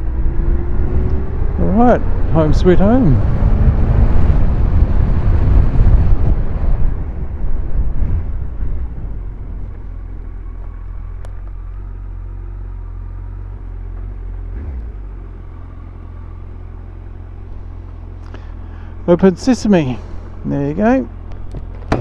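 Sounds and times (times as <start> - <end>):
motorcycle slowing down: 0.0 - 22.0
wind and road noise: 0.0 - 22.0
motorcycle engine idling: 7.0 - 22.0.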